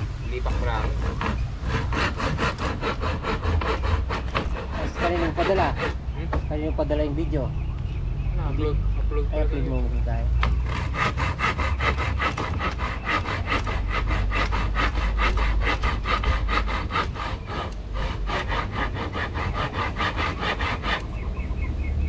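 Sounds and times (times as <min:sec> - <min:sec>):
handsaw cutting wood: 0:00.3 - 0:06.5, 0:10.4 - 0:21.4.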